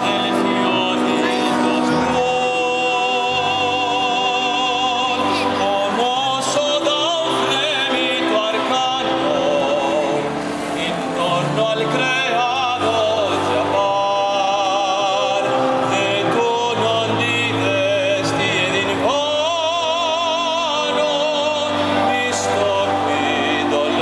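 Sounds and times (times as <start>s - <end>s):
accompanying music: 0.0s - 24.0s
operatic singing: 0.0s - 24.0s.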